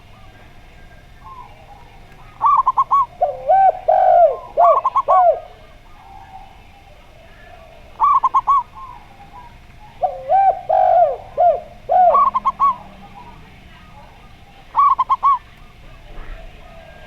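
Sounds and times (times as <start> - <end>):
lower dove coos: 0.0 - 17.0
dove cooing in quick high notes: 10.0 - 13.3.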